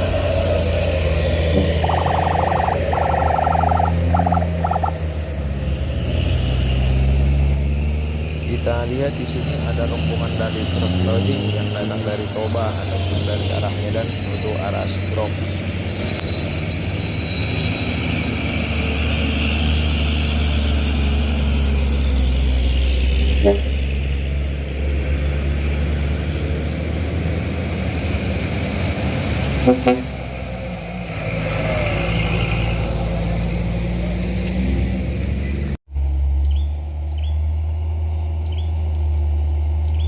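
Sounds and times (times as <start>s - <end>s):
heavy truck engines under load: 0.0s - 40.0s
truck horn toots: 23.3s - 23.9s, 29.5s - 30.4s.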